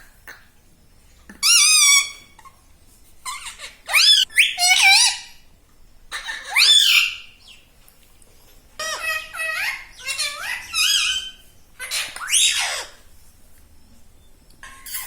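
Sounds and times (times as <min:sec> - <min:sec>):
parrot calling loudly: 0:01.4 - 0:02.5, 0:03.2 - 0:05.4, 0:06.1 - 0:07.3, 0:08.8 - 0:13.0.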